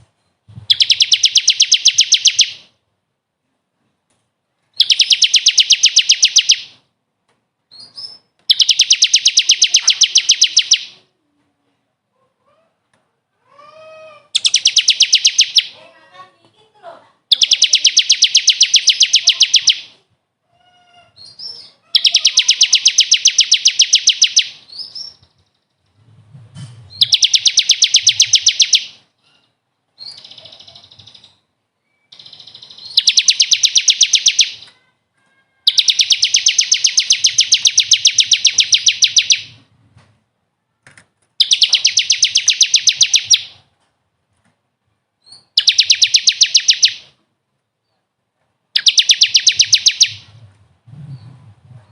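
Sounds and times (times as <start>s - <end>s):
bird singing fast trills: 0.7s - 2.7s, 4.8s - 6.8s, 7.7s - 11.0s, 14.3s - 15.8s, 17.3s - 20.0s, 21.2s - 25.2s, 27.0s - 29.0s, 30.0s - 34.7s, 35.7s - 39.6s, 41.4s - 43.6s, 45.3s - 47.1s, 48.8s - 50.3s.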